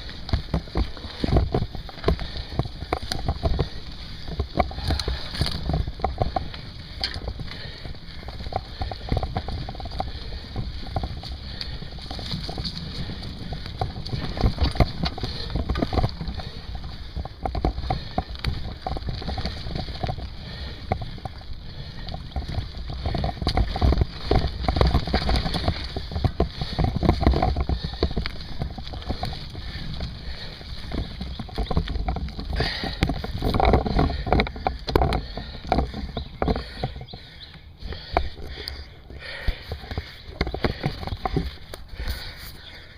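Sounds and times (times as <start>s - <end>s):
bike rattling over rough ground: 0.0s - 42.9s
wind buffeting microphone: 0.0s - 42.9s.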